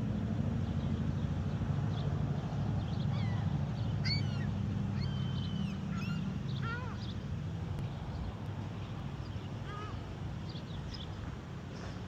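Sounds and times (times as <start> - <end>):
gulls calling: 3.0 - 7.3, 9.4 - 10.2.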